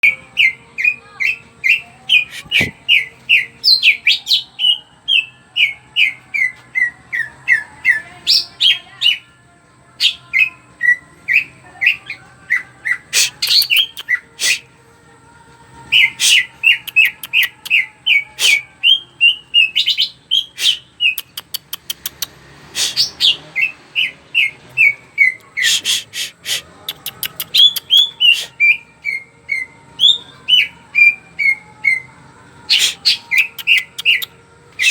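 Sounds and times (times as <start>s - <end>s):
bird singing whistled notes: 0.0s - 8.8s, 10.0s - 14.6s, 22.8s - 32.1s, 32.7s - 34.9s
sharp rapid bird clicking: 21.1s - 22.4s, 26.9s - 28.1s.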